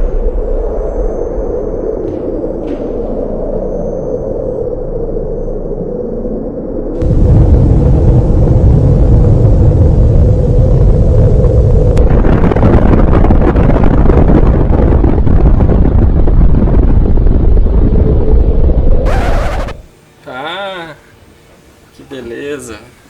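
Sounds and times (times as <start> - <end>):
gas fireplace flame rumbling: 7.0 - 19.9.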